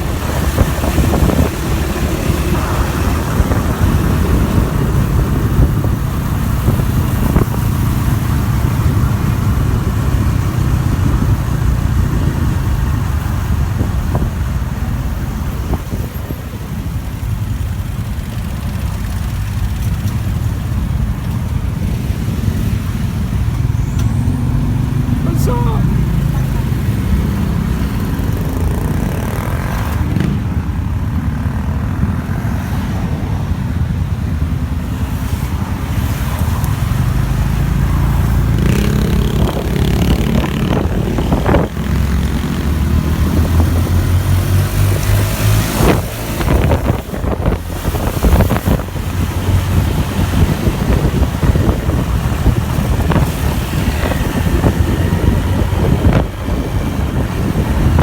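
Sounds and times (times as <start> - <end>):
motorbike engine running: 33.7 - 58.0.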